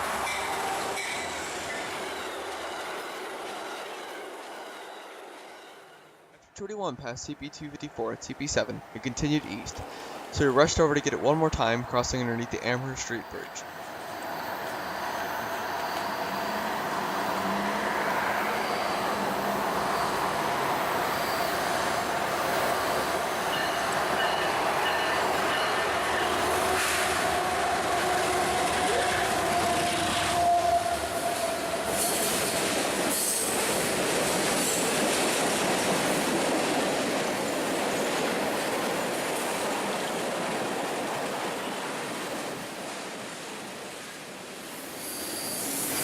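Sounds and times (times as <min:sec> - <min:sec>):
train rumbling past: 0:00.0 - 0:06.4, 0:09.6 - 0:46.0
wheel squeal: 0:14.1 - 0:17.4, 0:44.8 - 0:46.0.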